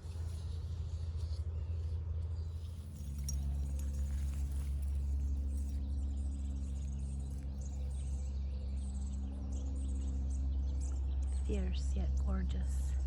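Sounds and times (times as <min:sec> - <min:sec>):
low rumble and hum: 0:00.0 - 0:13.0
small birds chirping: 0:00.0 - 0:13.0.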